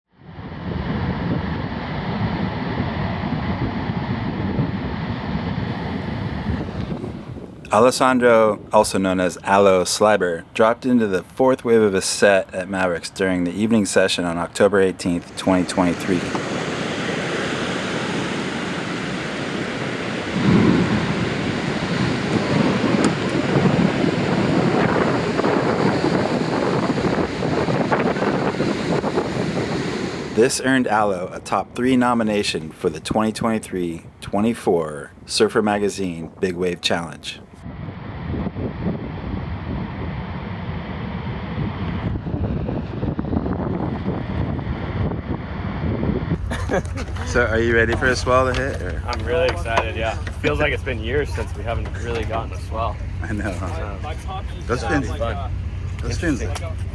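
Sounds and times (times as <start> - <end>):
wind: 0.1 - 56.9
ocean waves: 5.7 - 8.3, 14.3 - 31.0, 46.4 - 56.9.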